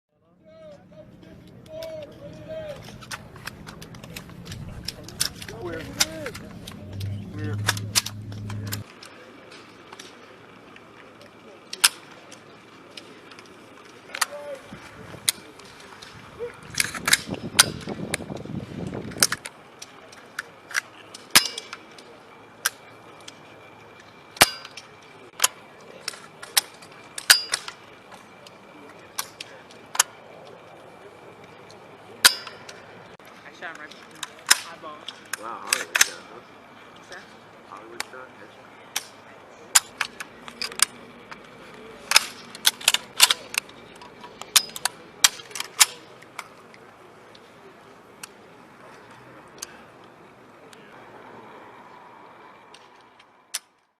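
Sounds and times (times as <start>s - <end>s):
low rumble of handling: 0.6s - 8.9s.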